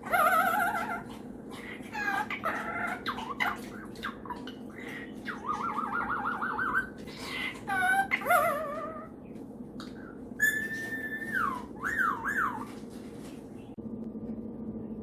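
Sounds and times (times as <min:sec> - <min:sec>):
parrot chirping and squawking: 0:00.0 - 0:09.1, 0:10.4 - 0:12.8
parrot warbling: 0:01.9 - 0:04.6, 0:05.2 - 0:07.0, 0:07.6 - 0:09.1, 0:10.4 - 0:12.7.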